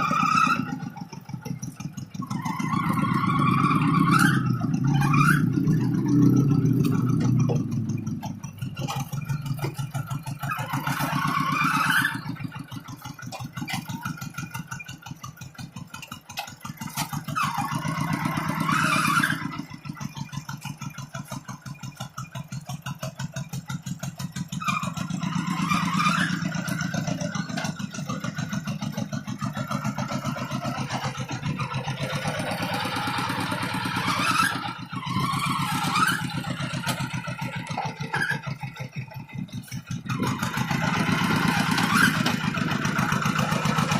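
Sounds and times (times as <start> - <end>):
tractor engine chugging: 0.0 - 43.9.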